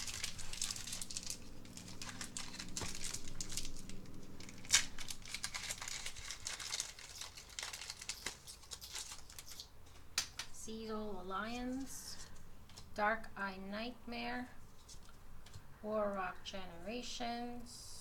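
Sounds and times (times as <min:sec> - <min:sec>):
foil wrappers crinkling: 0:00.0 - 0:10.1
wrapper snapping: 0:00.0 - 0:10.5.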